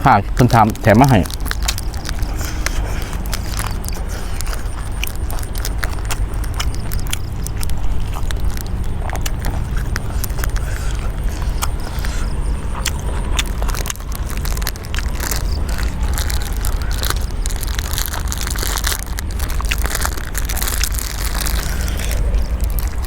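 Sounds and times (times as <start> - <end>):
crunchy chewing: 0.0 - 23.0
steady low rumble: 0.0 - 23.0.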